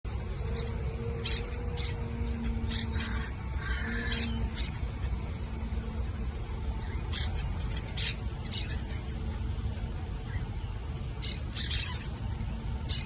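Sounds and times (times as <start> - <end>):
steady low rumble: 0.0 - 13.0
parrots calling: 0.6 - 5.2, 6.8 - 9.4, 11.2 - 12.2.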